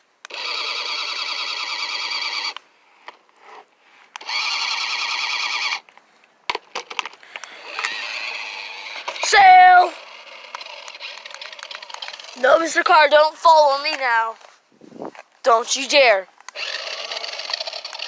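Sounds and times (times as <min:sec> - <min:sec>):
toy car electric motor whirring: 0:00.3 - 0:02.6, 0:03.5 - 0:05.8, 0:07.0 - 0:12.9, 0:16.5 - 0:18.0.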